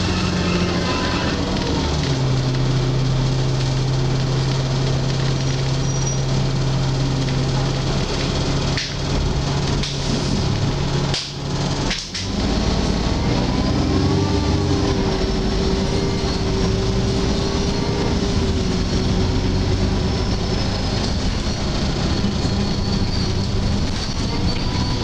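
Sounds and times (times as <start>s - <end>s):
steady screeching tones: 0.0s - 1.9s, 13.4s - 25.0s
bus engine and road noise: 0.0s - 25.0s.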